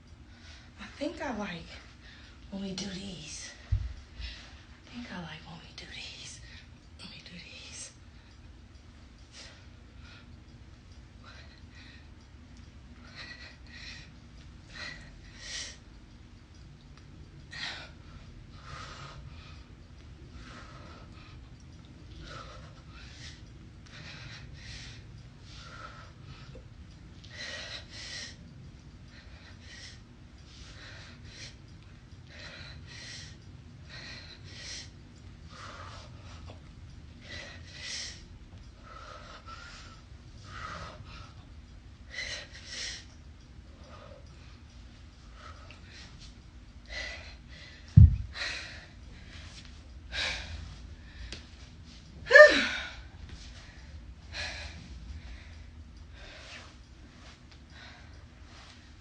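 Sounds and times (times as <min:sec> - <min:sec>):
woman breathing hard: 0:11.1 - 0:15.9, 0:17.4 - 0:59.0
low thump: 0:48.0 - 0:48.4.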